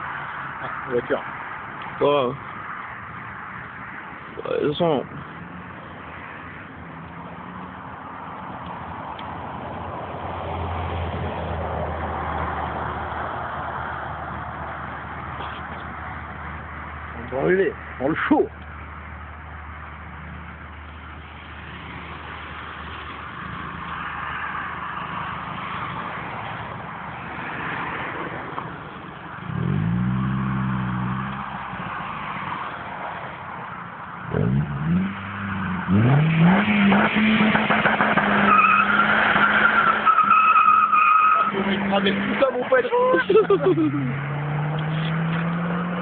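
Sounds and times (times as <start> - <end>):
car engine revving: 29.4 - 32.3, 34.3 - 46.0
tyres squealing: 38.3 - 44.2.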